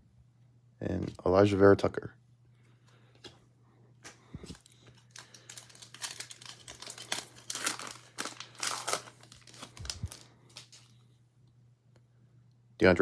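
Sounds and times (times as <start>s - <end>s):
foil wrapper tearing and crinkling: 4.5s - 11.0s.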